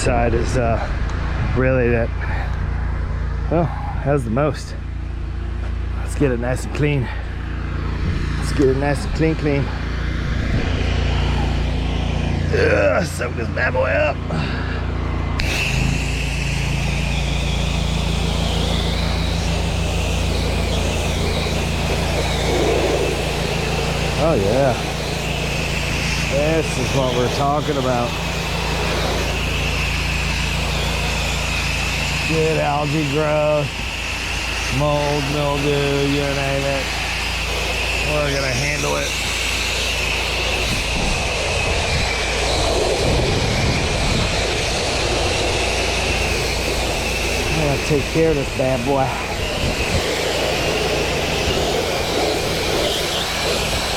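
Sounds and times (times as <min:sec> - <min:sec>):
engine drone: 0:00.0 - 0:53.9
water spray hissing: 0:10.6 - 0:53.9.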